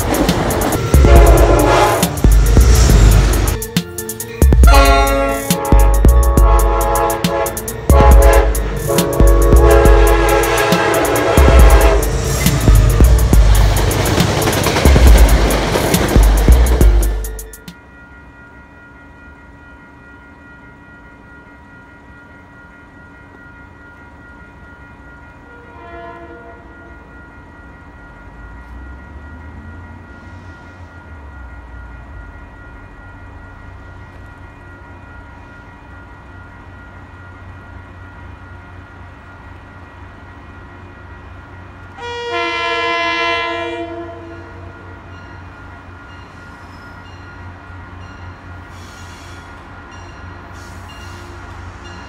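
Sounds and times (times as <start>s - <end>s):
train rumble: 0.0s - 52.0s
train horn: 0.9s - 2.3s, 4.6s - 12.5s, 25.4s - 26.9s, 42.0s - 44.9s.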